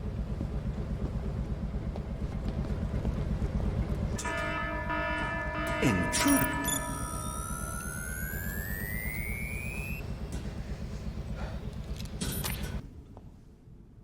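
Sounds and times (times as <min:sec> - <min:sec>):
rising electronic whine: 0:05.9 - 0:10.9.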